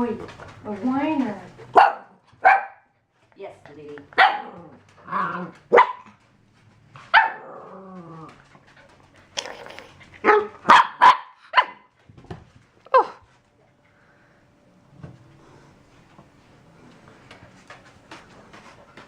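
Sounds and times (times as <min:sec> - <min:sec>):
puppy yapping: 0:01.7 - 0:02.9, 0:04.1 - 0:06.2, 0:07.0 - 0:08.3, 0:09.4 - 0:11.9.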